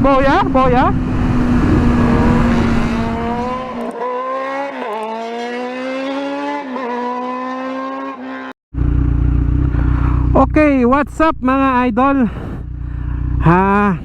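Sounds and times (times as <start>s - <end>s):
wind and road rumble: 0.0s - 4.2s, 8.8s - 14.0s
motorcycle engine running hard: 8.7s - 14.0s.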